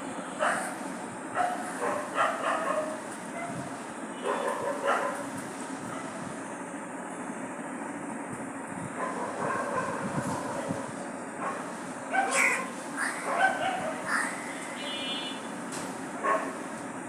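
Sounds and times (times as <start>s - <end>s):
pet bird calling: 12.2s - 14.8s.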